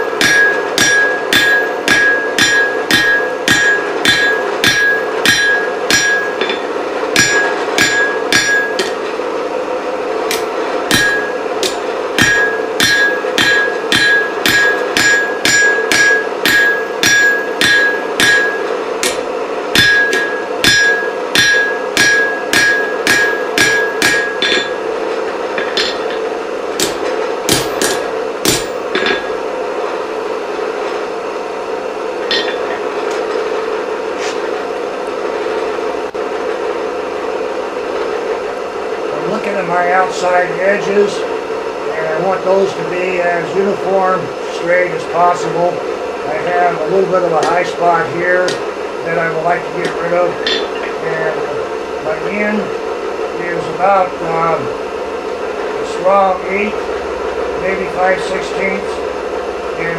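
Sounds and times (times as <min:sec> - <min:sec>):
anvil ringing: 0:00.0 - 0:09.0, 0:10.3 - 0:24.9, 0:25.5 - 0:29.4, 0:32.2 - 0:32.8, 0:49.8 - 0:50.9
hammer striking on an anvil: 0:00.0 - 0:09.1, 0:10.3 - 0:24.8, 0:25.5 - 0:29.4, 0:32.2 - 0:33.4, 0:47.4 - 0:47.7, 0:48.4 - 0:48.7, 0:49.8 - 0:51.0
steady hum: 0:00.0 - 0:59.9.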